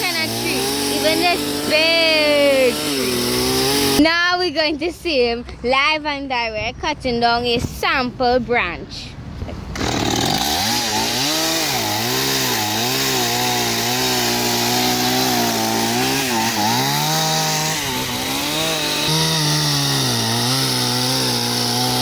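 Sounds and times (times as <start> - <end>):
chainsaw cutting a branch: 0.0 - 4.2, 9.7 - 22.0.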